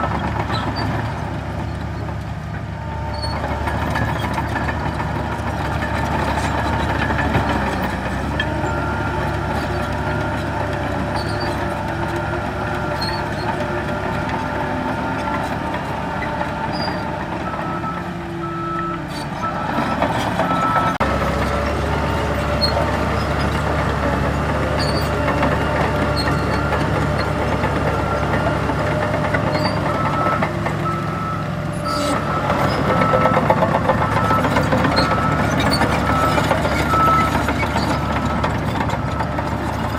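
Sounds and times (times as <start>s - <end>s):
heavy diesel machines running: 0.0s - 39.9s
reversing alarm beeping: 16.7s - 21.0s, 24.9s - 39.4s.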